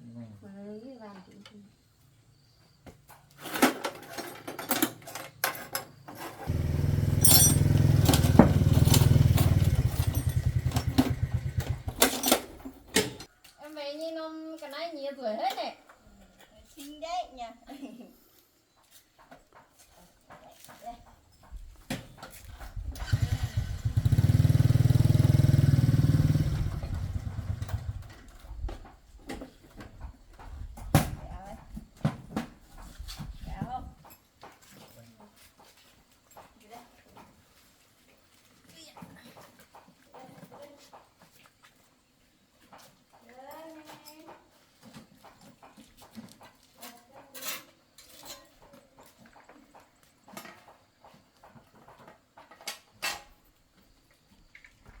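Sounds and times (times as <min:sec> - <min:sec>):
tractor engine running: 0:06.4 - 0:13.2, 0:22.8 - 0:28.2.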